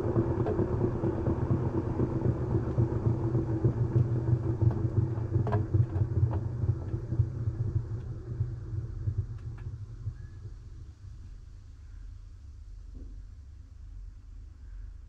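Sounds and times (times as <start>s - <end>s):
washing machine rumbling: 0.0s - 11.2s.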